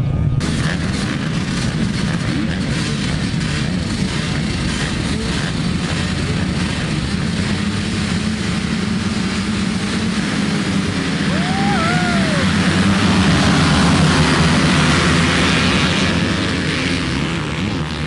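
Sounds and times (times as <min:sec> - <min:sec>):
short rising and falling pitched sound: 0:00.0 - 0:00.9
motocross bike engines revving: 0:00.4 - 0:18.0.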